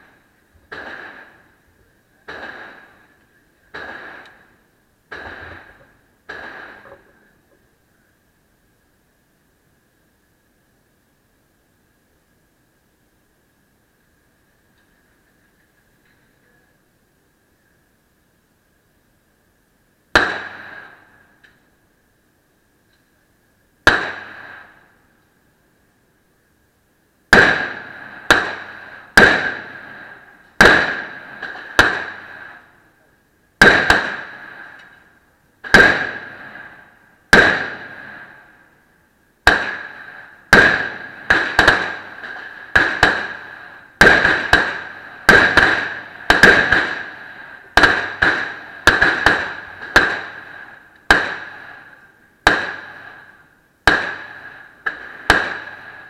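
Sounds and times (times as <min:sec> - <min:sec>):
pistol shots echoing: 0:00.7 - 0:01.5, 0:02.2 - 0:07.1, 0:20.2 - 0:21.1, 0:23.8 - 0:24.8, 0:27.3 - 0:32.7, 0:33.6 - 0:35.0, 0:35.6 - 0:38.6, 0:39.4 - 0:56.0.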